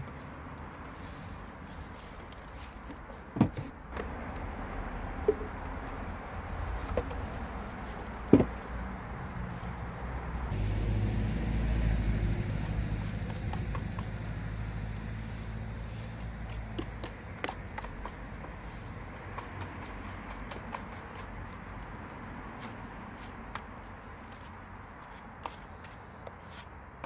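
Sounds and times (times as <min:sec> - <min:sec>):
vehicle engine rumble: 0:00.0 - 0:20.5
wooden beehive parts knocking: 0:06.7 - 0:08.7.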